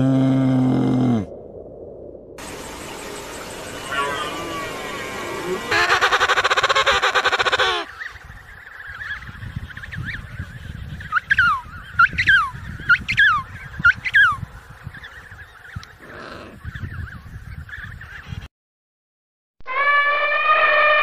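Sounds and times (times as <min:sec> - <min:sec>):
low outdoor rumble: 0:00.0 - 0:07.1
buzzy honking animal call: 0:03.5 - 0:07.9, 0:19.7 - 0:21.0.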